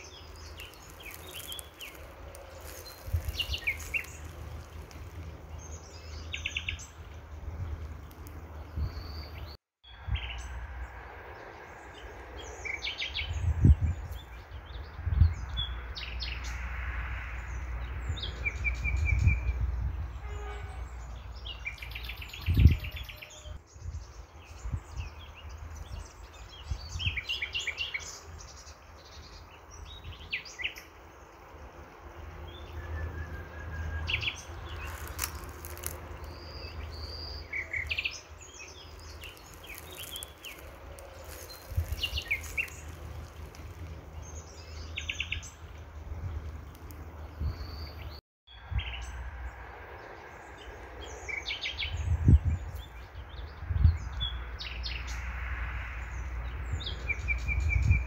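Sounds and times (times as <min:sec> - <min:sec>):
small birds chirping: 0:00.0 - 0:10.6, 0:33.8 - 0:49.2.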